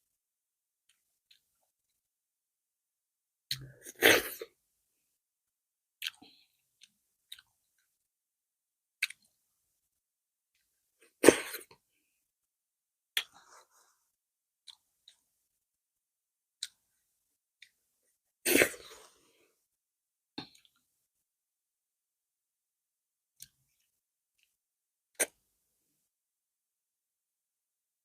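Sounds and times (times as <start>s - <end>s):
mouth clicks and smacks eating: 16.6s - 16.8s.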